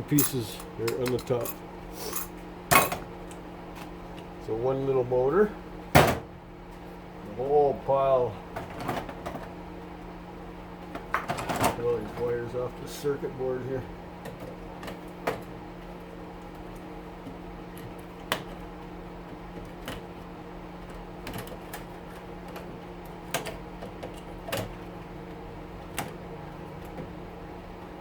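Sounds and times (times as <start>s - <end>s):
exhaust fan humming: 0.0s - 28.0s.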